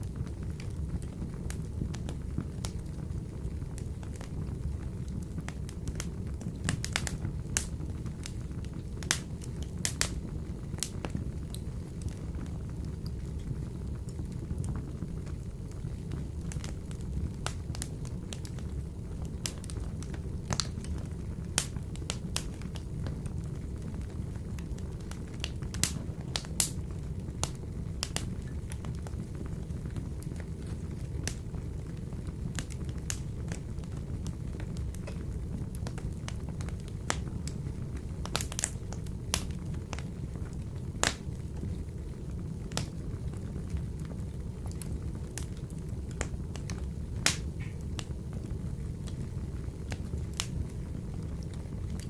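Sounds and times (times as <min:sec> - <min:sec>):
wood fire crackling in a stove: 0:00.0 - 0:52.0.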